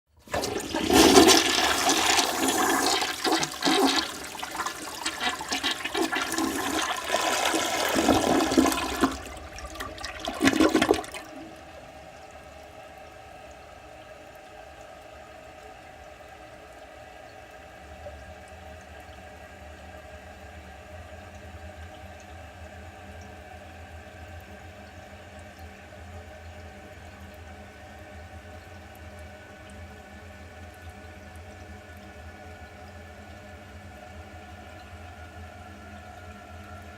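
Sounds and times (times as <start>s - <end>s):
toilet flushing: 0.2s - 14.0s
tank refilling with hiss: 0.3s - 11.3s.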